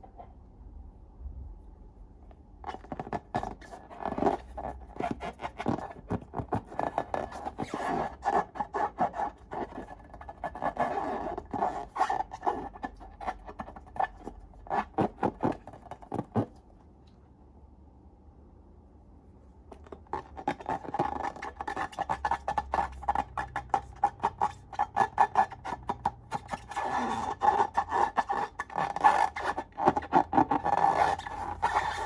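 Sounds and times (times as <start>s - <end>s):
slime crackling and scraping: 19.8s - 32.0s.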